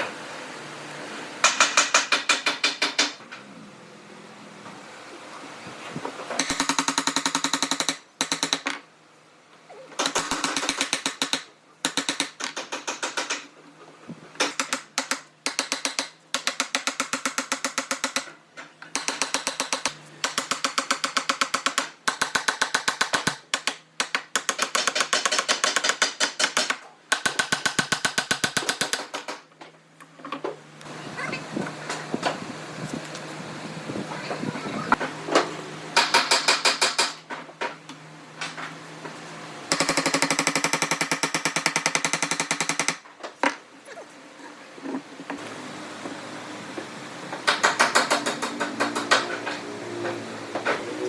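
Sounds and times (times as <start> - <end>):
power tool hammering rattle: 1.4 - 3.2, 10.0 - 13.5, 36.0 - 37.2, 39.7 - 43.1, 47.4 - 49.6.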